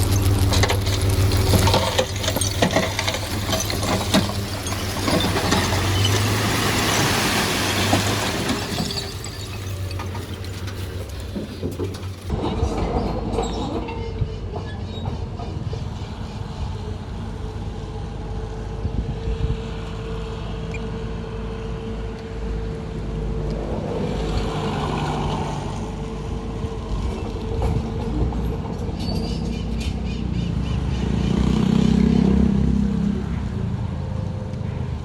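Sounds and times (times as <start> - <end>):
metallic clatter and squeal: 0.0 - 16.8, 27.0 - 30.5
diesel construction machinery running: 0.0 - 31.4.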